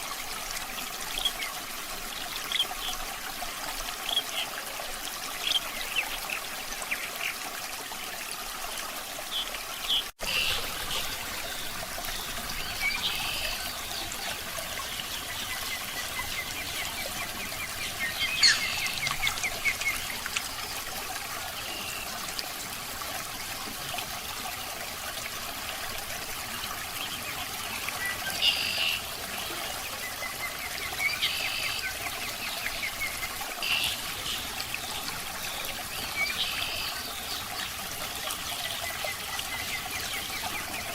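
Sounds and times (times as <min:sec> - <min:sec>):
water trickling: 0:00.0 - 0:40.9.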